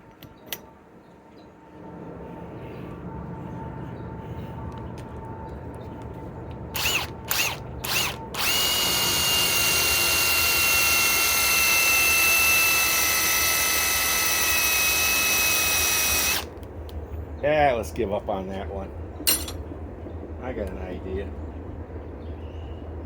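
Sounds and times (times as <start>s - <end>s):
impact wrench whining: 6.8s - 16.5s.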